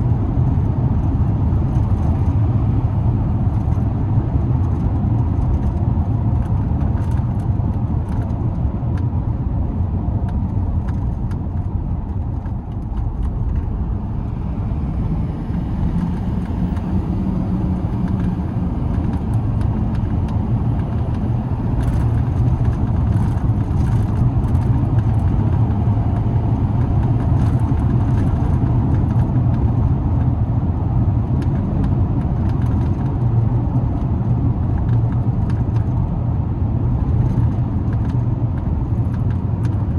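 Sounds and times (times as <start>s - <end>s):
road noise: 0.0s - 39.9s
pickup engine drone: 10.4s - 30.4s.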